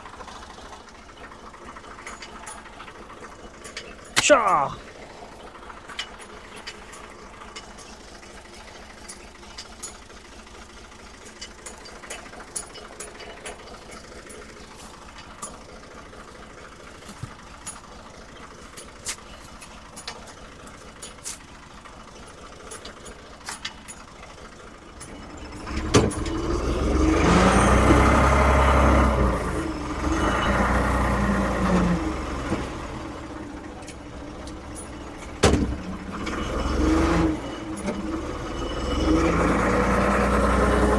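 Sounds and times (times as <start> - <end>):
diesel engine running and revving: 8.3 - 40.9.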